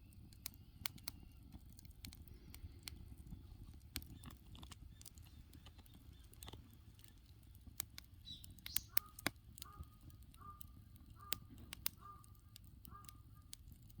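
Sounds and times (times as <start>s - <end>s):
campfire crackling and popping: 0.0s - 14.0s
bird calling: 8.2s - 13.5s.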